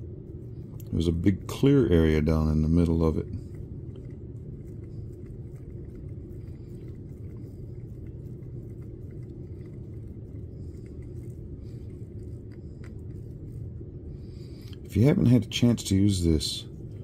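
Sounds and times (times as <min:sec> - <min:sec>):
low background rumble: 0:00.0 - 0:17.0
stick stirring resin in cup: 0:00.3 - 0:14.0.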